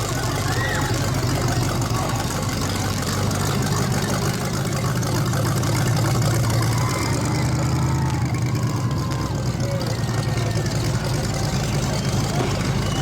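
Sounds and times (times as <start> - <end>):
large vehicle engine idling: 0.0 - 13.0.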